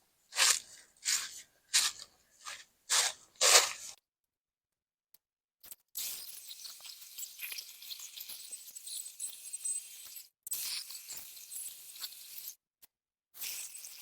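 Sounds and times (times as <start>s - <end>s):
dry leaves crunching: 0.4s - 3.9s.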